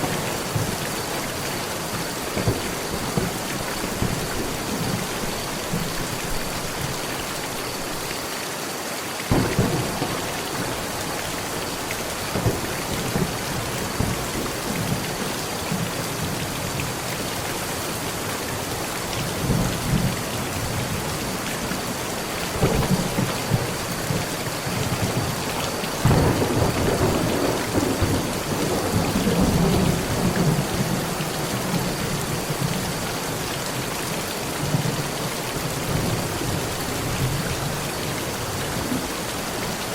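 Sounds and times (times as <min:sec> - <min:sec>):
thunder rumbling: 0:00.0 - 0:06.9, 0:09.3 - 0:16.4, 0:19.3 - 0:33.4
heavy rain on a metal roof: 0:00.0 - 0:39.9.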